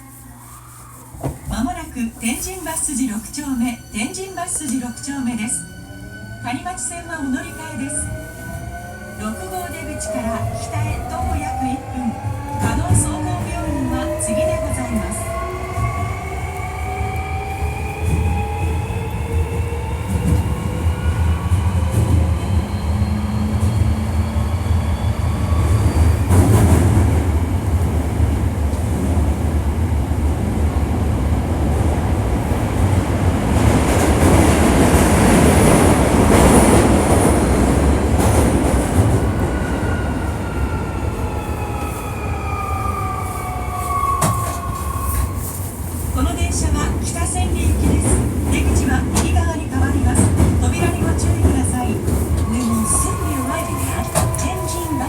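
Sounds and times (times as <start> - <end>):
high squeal: 52.3 - 55.0.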